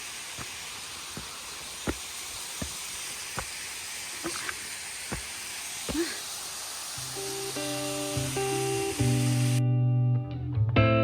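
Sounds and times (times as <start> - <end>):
footsteps walking: 0.0 - 6.2
flowing water: 0.0 - 9.6.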